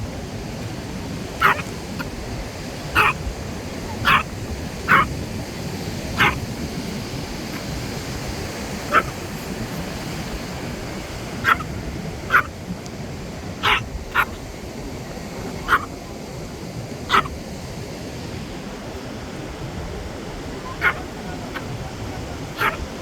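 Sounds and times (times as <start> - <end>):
background rush: 0.0 - 23.0
dog barking: 1.4 - 12.6, 13.6 - 14.5, 15.4 - 16.0, 17.1 - 17.4, 20.5 - 23.0.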